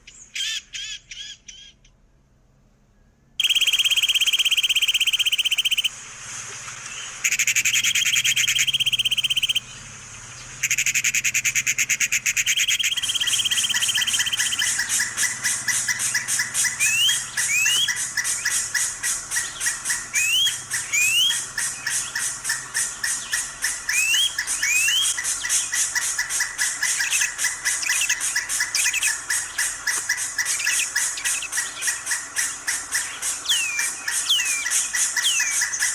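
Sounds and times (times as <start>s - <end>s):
parrot chattering: 3.4s - 5.9s, 7.2s - 9.6s, 10.6s - 35.9s
short rising whistles: 3.4s - 6.0s, 7.2s - 9.7s, 10.6s - 15.2s, 16.1s - 18.6s, 20.1s - 21.4s, 23.9s - 25.2s, 33.5s - 35.6s
parrot screeching: 12.6s - 17.9s.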